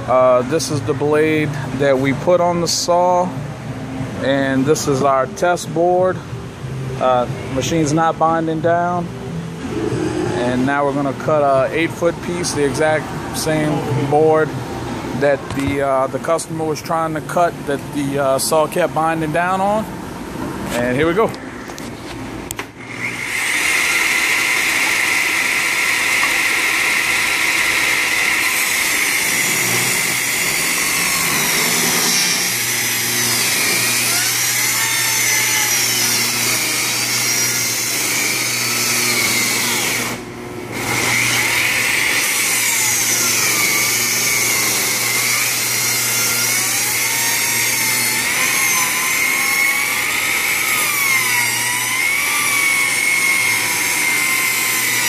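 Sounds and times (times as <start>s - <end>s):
table saw ripping a board: 22.6s - 55.0s.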